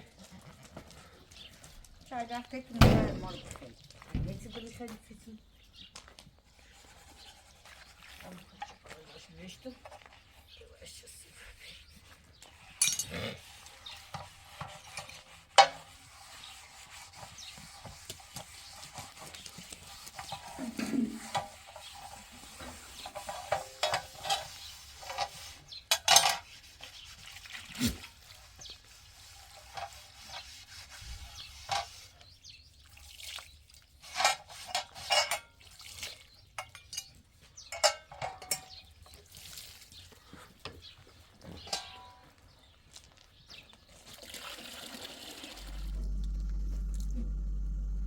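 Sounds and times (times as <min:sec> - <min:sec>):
dishes and utensils clinking: 0:12.8 - 0:13.2, 0:25.9 - 0:26.5, 0:34.2 - 0:35.6, 0:36.6 - 0:38.9.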